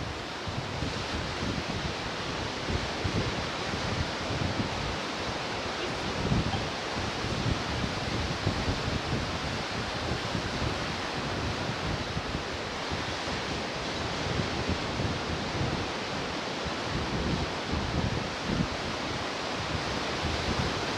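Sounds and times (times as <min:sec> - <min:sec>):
wind buffeting microphone: 0:00.0 - 0:16.1
ocean surf washing onto shore: 0:00.0 - 0:20.9.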